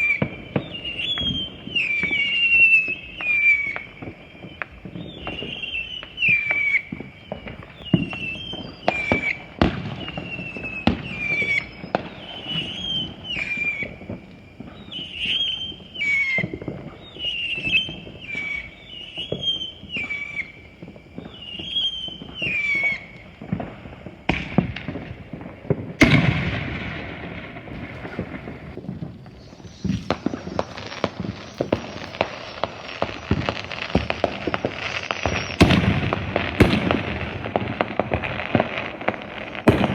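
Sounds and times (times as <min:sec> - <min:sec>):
fireworks popping and banging: 0:00.0 - 0:39.9
dense crackling: 0:23.0 - 0:39.9.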